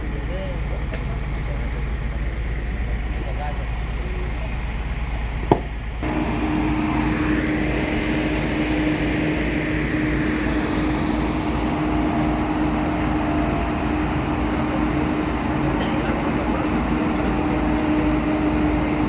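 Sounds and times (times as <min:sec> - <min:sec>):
heavy diesel engine running: 0:00.0 - 0:19.0
steady hum: 0:06.0 - 0:19.0.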